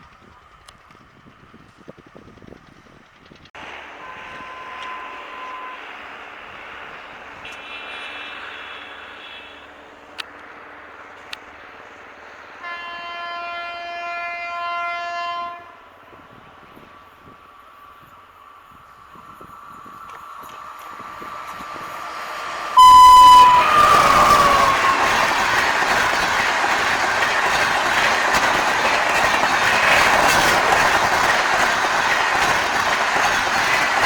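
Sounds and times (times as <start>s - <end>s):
train rumbling past: 0.0s - 34.0s
train horn: 3.8s - 6.2s, 7.4s - 9.7s, 12.6s - 16.0s, 22.8s - 26.0s.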